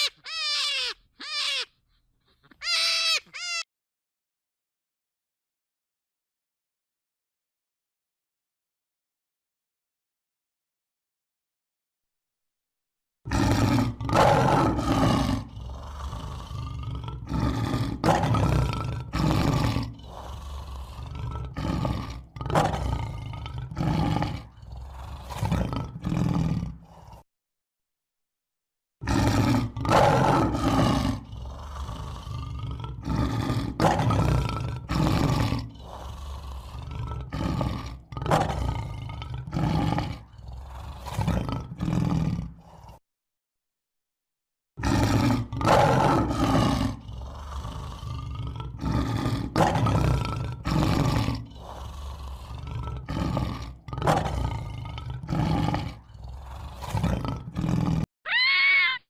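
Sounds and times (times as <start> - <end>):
lion roaring: 13.3 - 27.3, 29.0 - 43.0, 44.8 - 59.0.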